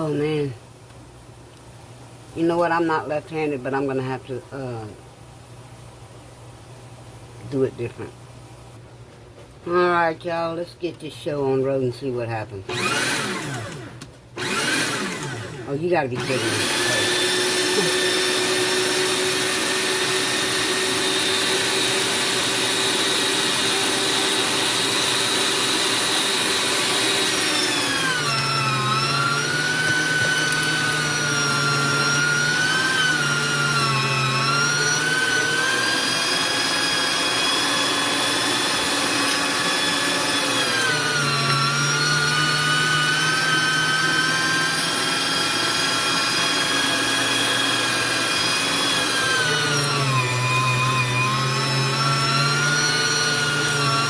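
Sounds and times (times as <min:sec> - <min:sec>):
meat grinder motor whining: 0:12.7 - 0:54.0.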